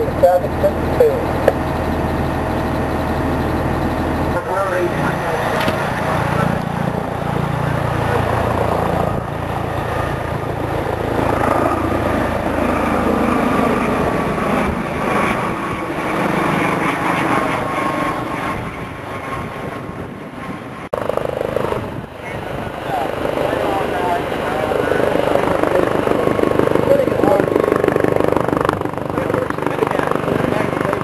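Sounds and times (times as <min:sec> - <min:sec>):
diesel engine idling: 0:00.0 - 0:08.7
outdoor vehicle noise: 0:00.0 - 0:31.0.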